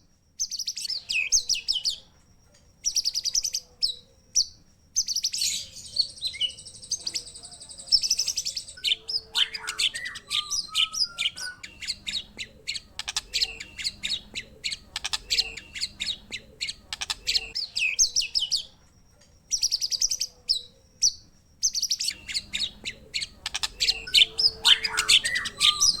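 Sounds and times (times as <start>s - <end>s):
songbird chirps and trills: 0.0s - 26.0s.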